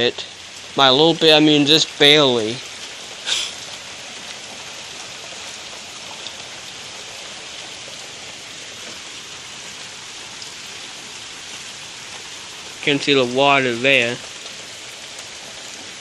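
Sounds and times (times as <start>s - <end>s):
rustle: 0.0s - 16.0s
steady rain pouring: 0.0s - 16.0s.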